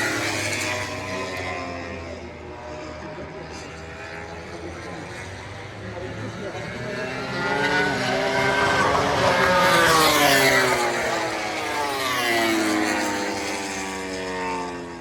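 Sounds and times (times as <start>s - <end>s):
racing motorcycles passing by: 0.0s - 15.0s.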